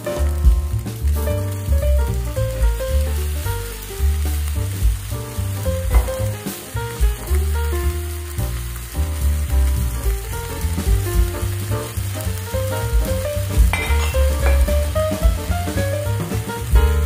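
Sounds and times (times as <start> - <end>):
background music with deep bass: 0.0 - 17.0
eggs sizzling in a wok: 0.0 - 17.0
sauce pouring: 3.1 - 16.6.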